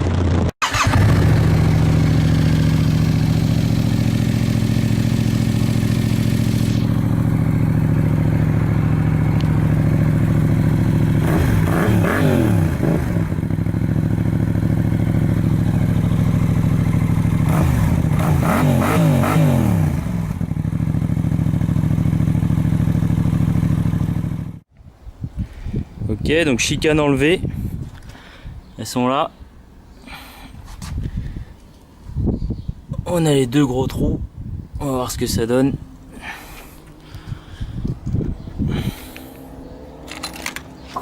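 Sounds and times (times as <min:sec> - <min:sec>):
motorcycle engine revving: 0:00.0 - 0:24.6, 0:37.4 - 0:41.0
motorcycle engine idling: 0:00.1 - 0:18.9, 0:19.8 - 0:24.6.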